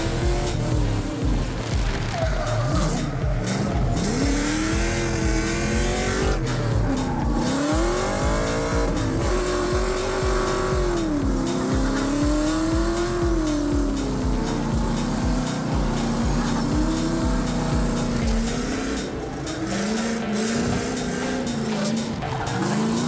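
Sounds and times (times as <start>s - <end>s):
background music beat: 0.0s - 23.0s
car engine revving: 0.0s - 23.0s
tire squeal: 0.0s - 23.0s.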